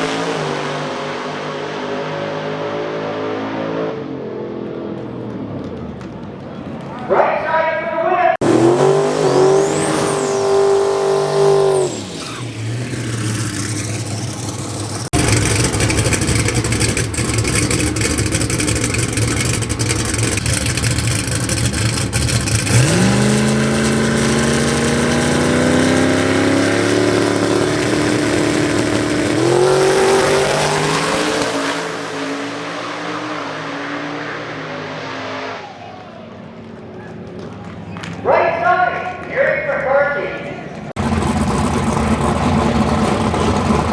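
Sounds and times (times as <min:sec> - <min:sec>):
race car engines at full throttle: 0:00.0 - 0:43.9
loud blast: 0:08.4 - 0:20.5.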